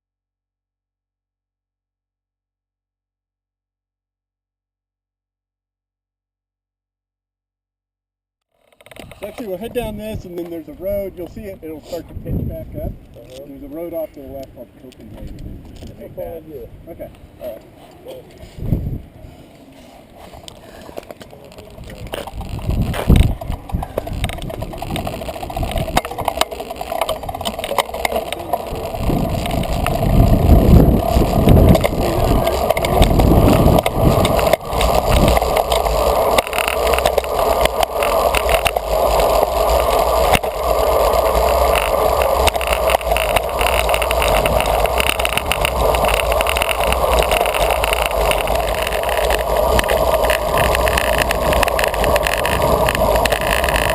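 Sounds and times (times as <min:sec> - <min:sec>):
bike tyres on pavement: 0:08.5 - 0:53.9
wind rushing over microphone: 0:08.9 - 0:17.4, 0:18.4 - 0:19.4, 0:21.6 - 0:53.9.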